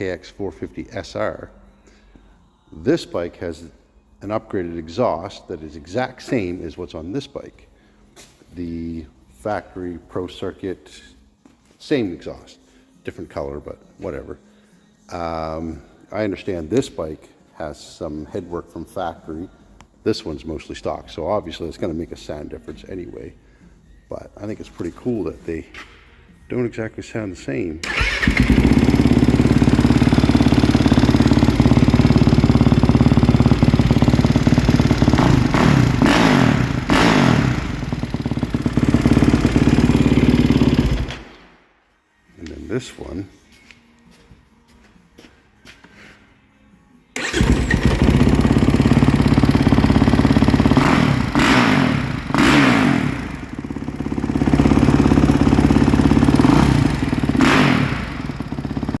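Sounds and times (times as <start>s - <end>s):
motorcycle engine idling: 27.8s - 41.4s, 47.2s - 59.0s.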